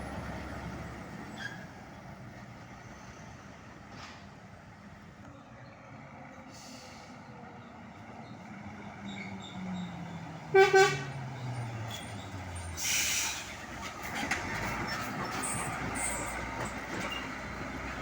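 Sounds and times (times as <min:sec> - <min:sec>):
truck engine passing: 0:00.0 - 0:18.0
horn toots: 0:10.5 - 0:11.1.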